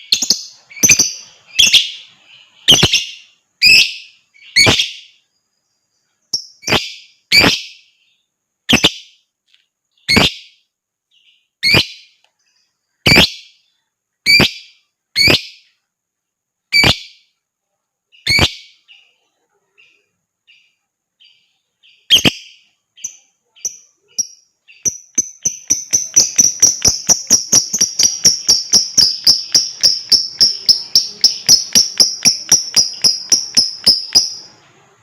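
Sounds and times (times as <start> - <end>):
lovebird shrill calls: 0.0 - 2.0, 2.6 - 5.1, 6.6 - 7.8, 11.6 - 12.1, 14.3 - 15.6, 18.2 - 18.8, 22.0 - 34.5
soft bird chirps: 0.0 - 35.0.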